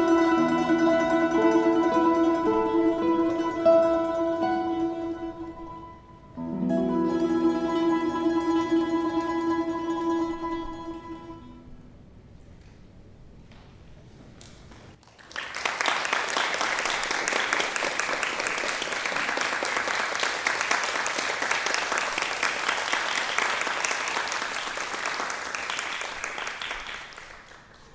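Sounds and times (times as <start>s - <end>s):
audience applauding: 15.0s - 27.9s.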